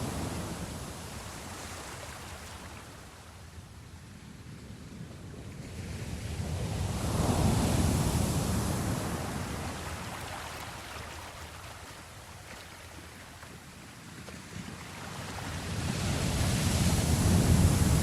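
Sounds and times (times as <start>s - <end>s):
sea waves washing: 6.4s - 18.0s.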